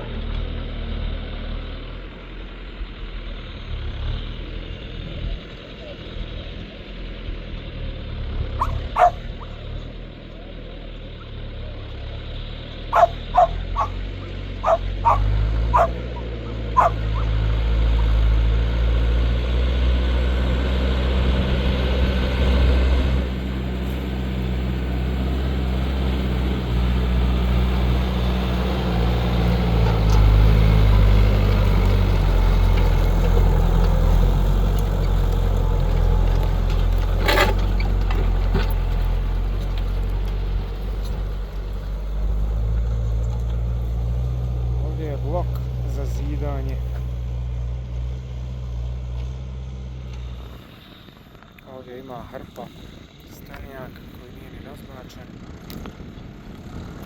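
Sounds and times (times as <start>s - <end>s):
tractor diesel engine running: 0.0s - 57.0s
dog barking: 8.6s - 9.6s, 12.9s - 14.0s, 14.6s - 17.4s.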